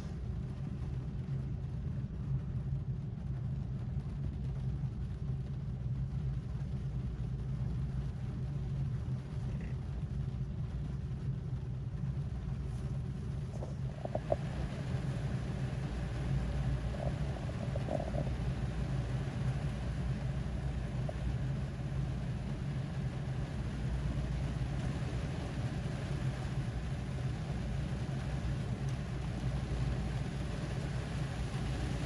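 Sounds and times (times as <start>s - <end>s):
rain drumming on a car roof: 12.9s - 32.0s.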